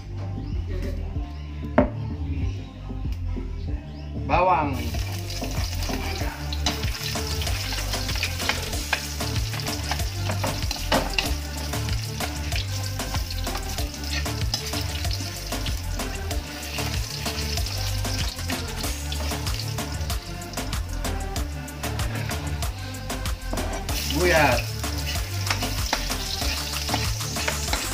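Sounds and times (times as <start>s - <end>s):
garlic sizzling in hot oil: 4.8s - 27.9s
metal spatula scraping pan: 24.8s - 27.9s.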